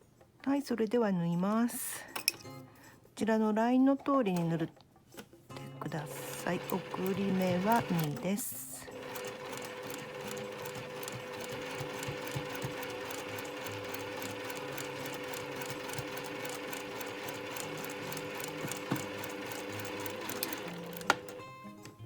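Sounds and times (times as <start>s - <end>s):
sewing machine stitching: 5.9s - 21.8s
sewing machine click: 6.0s - 8.3s, 8.9s - 21.9s.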